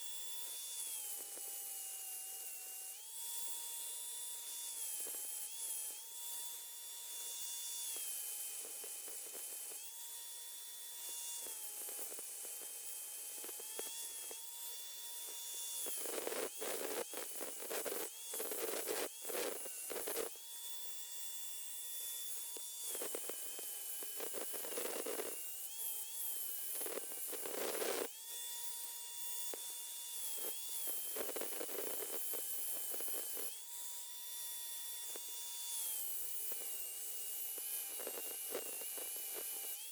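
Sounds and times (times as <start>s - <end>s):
grinder whining: 9.2s - 39.9s.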